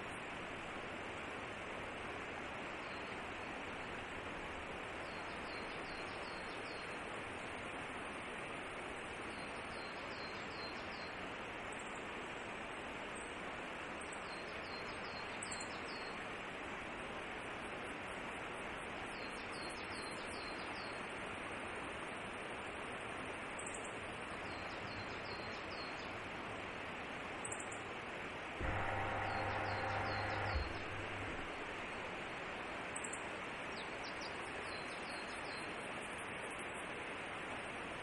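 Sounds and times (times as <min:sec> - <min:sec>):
outdoor background hiss: 0:00.0 - 0:38.0
low mechanical hum: 0:28.1 - 0:34.6.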